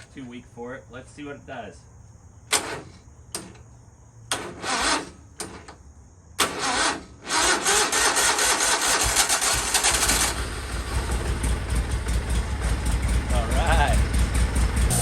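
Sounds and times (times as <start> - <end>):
engine cranking and starting: 2.5 - 3.6, 4.3 - 5.8, 6.4 - 15.0.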